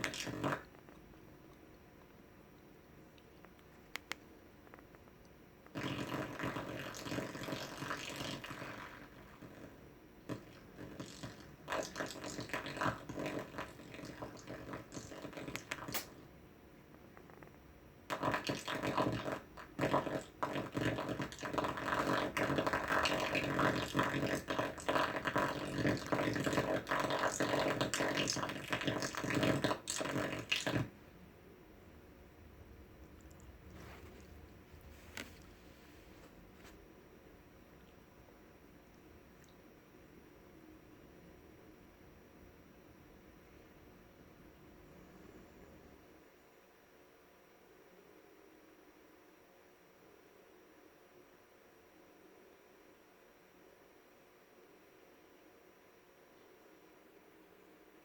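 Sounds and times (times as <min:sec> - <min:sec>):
harsh buzzing crackling noise: 0:00.0 - 0:40.9.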